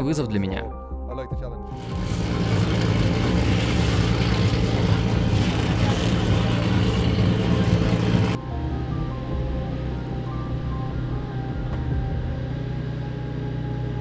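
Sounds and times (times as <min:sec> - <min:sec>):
loud rushing noise: 0:01.8 - 0:08.4
car engine running hard: 0:01.8 - 0:14.0.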